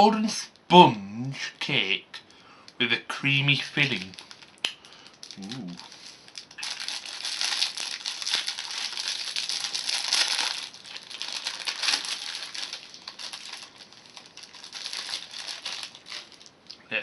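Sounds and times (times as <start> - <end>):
plastic snack wrapper crinkling: 3.5 - 16.8.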